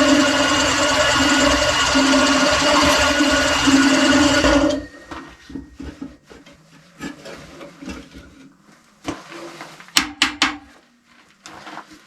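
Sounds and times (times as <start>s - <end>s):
electric drill boring steel: 0.0s - 5.3s.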